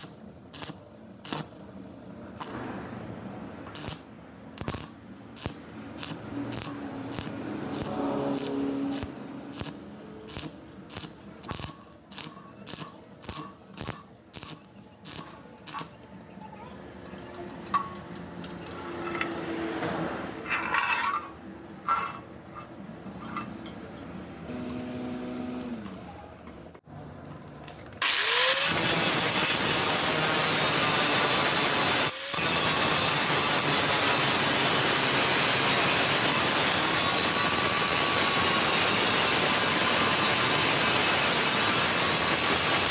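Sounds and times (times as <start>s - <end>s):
arc welding crackling hiss: 0.0s - 2.6s, 3.7s - 4.0s, 4.6s - 15.9s, 28.1s - 42.9s.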